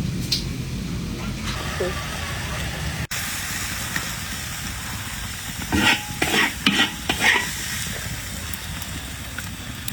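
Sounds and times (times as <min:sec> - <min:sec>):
food sizzling in a pan: 0:01.6 - 0:09.9
scraping strokes of stirring: 0:05.5 - 0:08.1.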